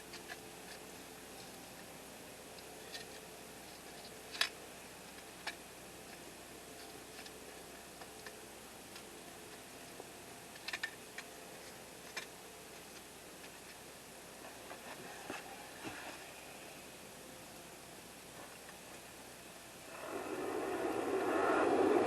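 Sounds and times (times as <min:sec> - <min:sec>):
campfire crackling: 0:19.8 - 0:22.0.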